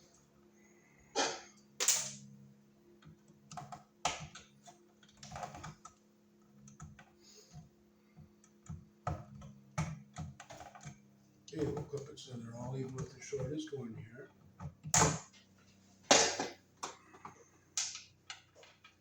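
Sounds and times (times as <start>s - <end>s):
faint steady hum: 0.0s - 19.0s
tools clicking and scraping: 1.2s - 2.2s.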